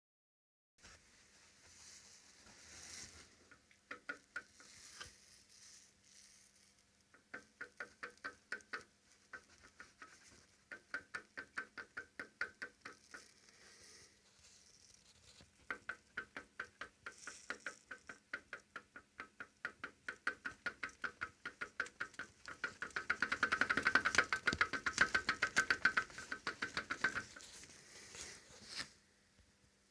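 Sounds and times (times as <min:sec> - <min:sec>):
rapid clicking knock: 0:03.5 - 0:04.7, 0:07.2 - 0:13.3, 0:15.6 - 0:27.6.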